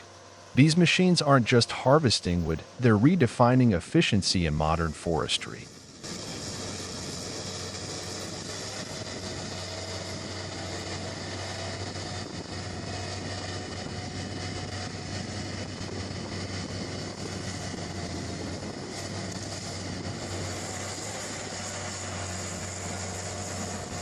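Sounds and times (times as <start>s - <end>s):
tracked machine engine running: 0.0s - 24.0s.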